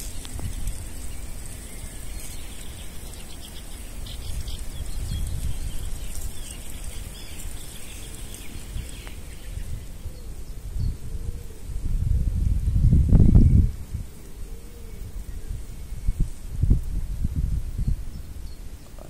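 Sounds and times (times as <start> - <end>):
small birds chirping: 0.0 - 11.5, 17.7 - 19.0.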